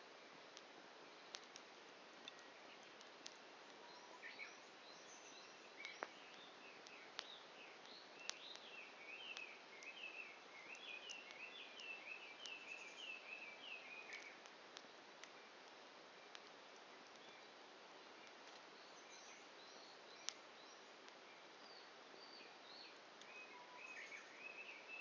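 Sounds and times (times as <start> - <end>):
campfire crackling and popping: 0.0 - 24.4
small bird chirping: 2.2 - 14.5, 18.2 - 25.0.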